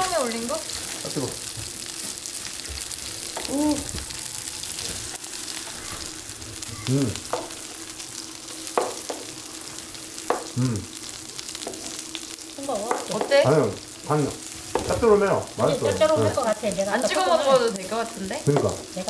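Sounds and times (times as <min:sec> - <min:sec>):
batter sizzling in hot oil: 0:00.0 - 0:19.0
utensil tapping a pan: 0:07.3 - 0:07.6, 0:08.7 - 0:09.3, 0:10.2 - 0:10.5.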